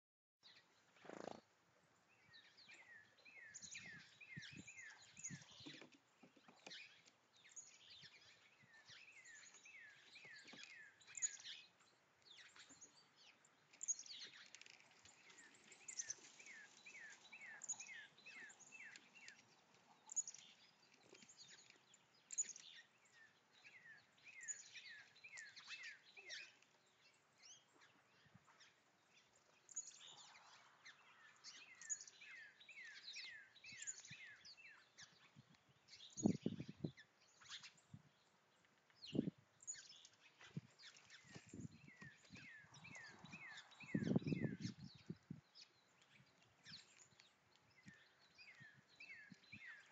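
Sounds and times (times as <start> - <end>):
high bird chirps: 41.2 - 45.1.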